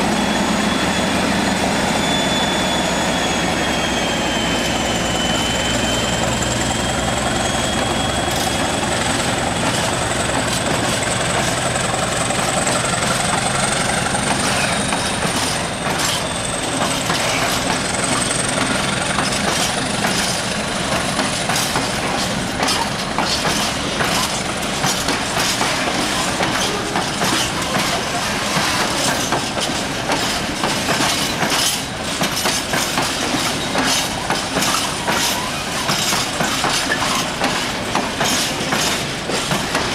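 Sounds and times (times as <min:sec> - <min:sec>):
train whine: 0:00.0 - 0:39.9
wheels clicking over rail joints: 0:09.6 - 0:39.9.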